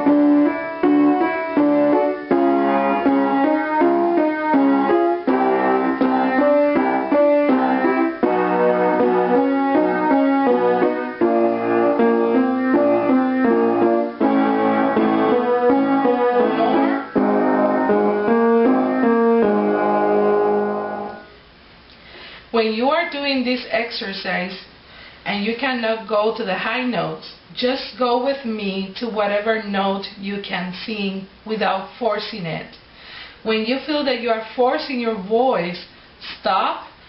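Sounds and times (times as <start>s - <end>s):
piano playing note patterns: 0.0s - 21.4s
person humming: 5.9s - 8.2s.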